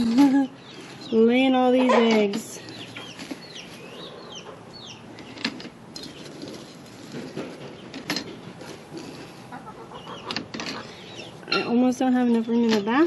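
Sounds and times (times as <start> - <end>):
hens clucking: 0.5 - 6.1, 7.2 - 11.6.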